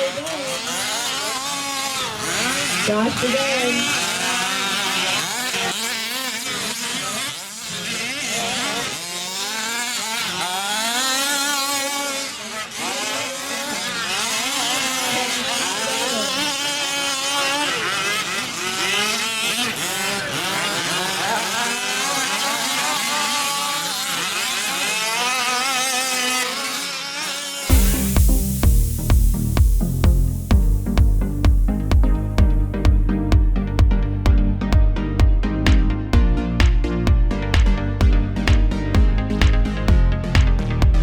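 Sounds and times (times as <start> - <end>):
rc truck engines revving: 0.0 - 28.2.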